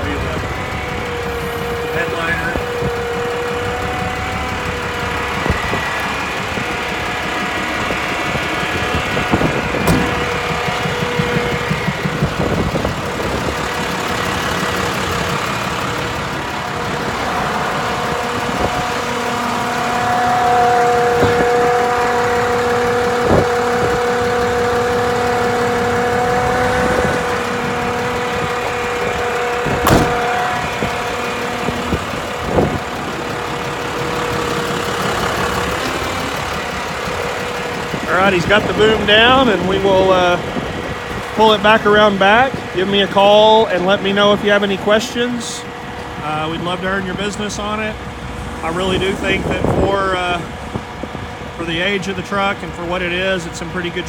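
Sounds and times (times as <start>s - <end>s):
diesel engine idling: 0.0s - 54.0s
hydraulic whine: 0.0s - 54.0s
sharp knocks: 9.4s - 12.6s, 29.6s - 30.6s.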